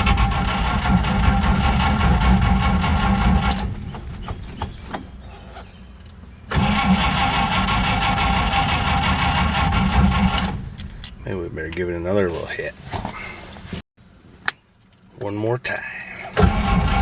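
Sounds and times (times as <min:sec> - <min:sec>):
car engine cranking by starter: 0:00.0 - 0:05.8, 0:06.5 - 0:11.2, 0:16.2 - 0:17.0.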